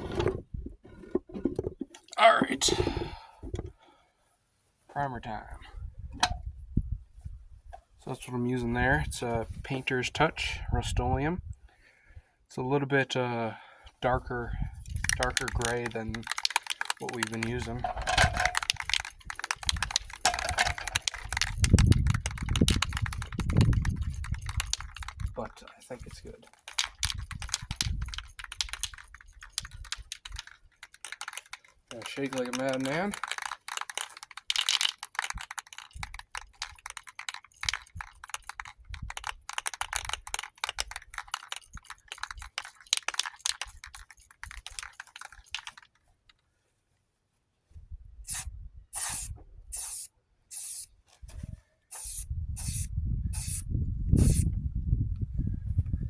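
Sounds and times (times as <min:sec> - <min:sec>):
spray can rattling: 0:14.8 - 0:45.9, 0:48.3 - 0:50.9, 0:51.9 - 0:53.6, 0:54.2 - 0:54.5.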